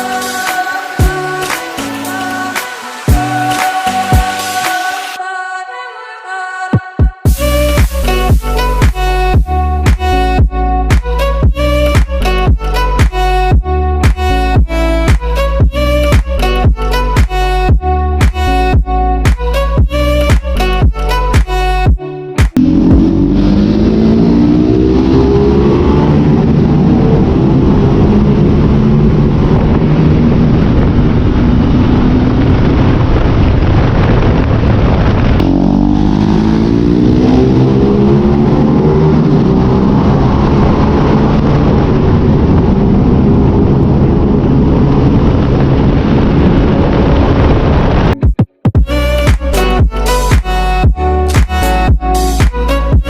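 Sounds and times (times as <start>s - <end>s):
motorcycle engine accelerating: 22.5s - 48.1s
wind rush: 22.6s - 48.3s.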